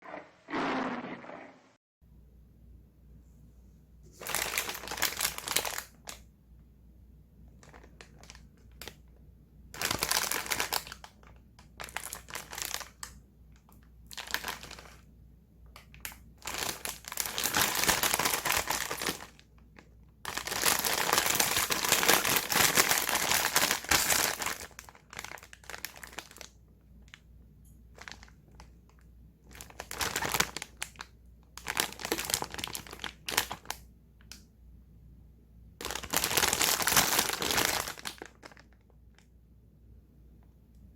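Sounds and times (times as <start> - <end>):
plastic packaging crinkling: 4.2 - 6.2, 7.6 - 9.0, 9.8 - 13.1, 14.1 - 15.0, 15.8 - 26.5, 27.9 - 31.0, 31.6 - 33.8, 35.8 - 39.2.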